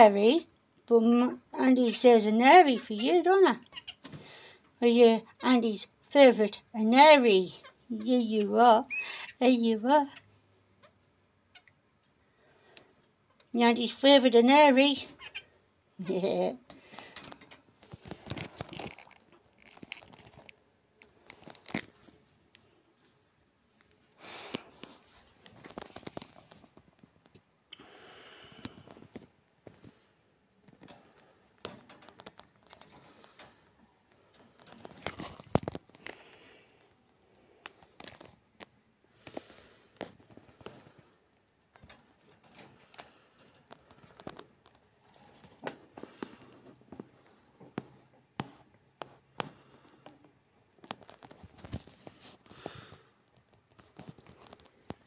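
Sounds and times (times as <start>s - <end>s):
bird moving in cage: 16.7s - 22.4s, 24.6s - 26.9s, 30.6s - 36.1s, 40.0s - 47.2s.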